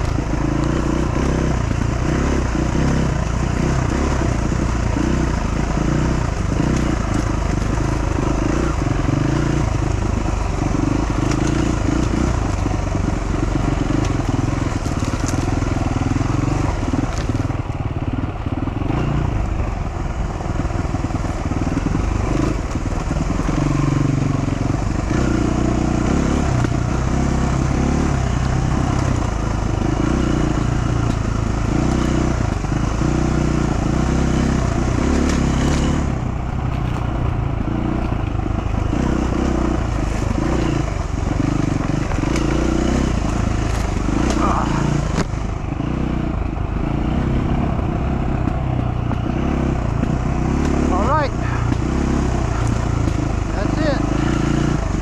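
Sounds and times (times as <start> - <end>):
motorcycle engine running: 0.0 - 55.0
tyre noise: 34.0 - 46.0, 46.8 - 55.0.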